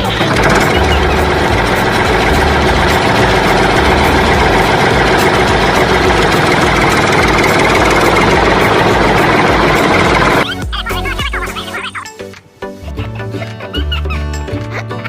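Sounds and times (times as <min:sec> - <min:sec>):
engine idling: 0:00.0 - 0:10.4.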